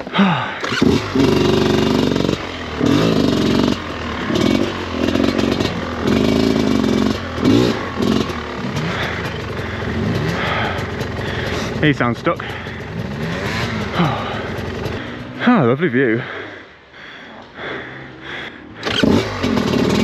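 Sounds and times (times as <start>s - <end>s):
dirt bike engine revving: 0.0s - 16.6s, 17.7s - 20.0s.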